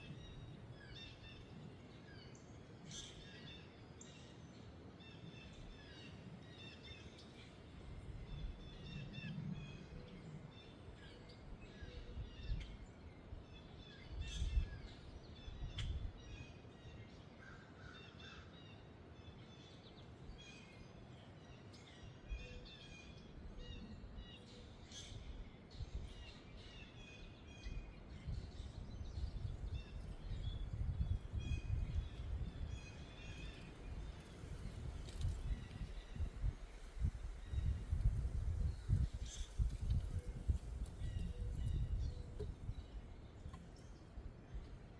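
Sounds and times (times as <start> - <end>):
wind rumbling on microphone: 7.8 - 16.4, 24.9 - 44.9.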